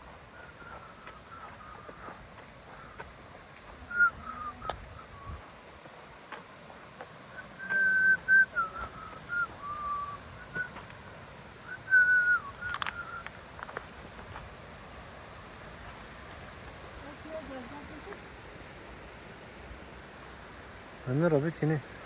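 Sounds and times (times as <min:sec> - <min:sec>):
person whistling a tune: 0:07.4 - 0:10.8, 0:11.8 - 0:13.3.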